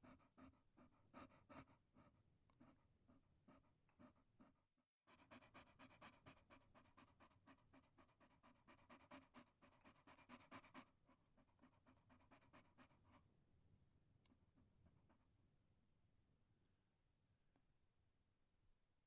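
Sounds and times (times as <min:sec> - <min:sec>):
dog panting: 0:00.0 - 0:13.4.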